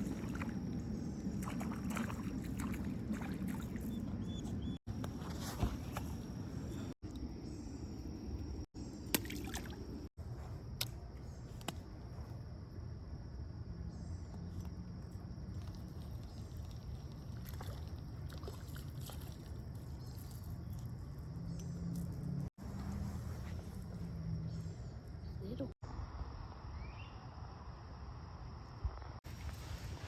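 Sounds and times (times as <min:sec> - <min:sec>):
creek water running: 0:00.0 - 0:04.5, 0:09.0 - 0:10.1, 0:15.3 - 0:21.0.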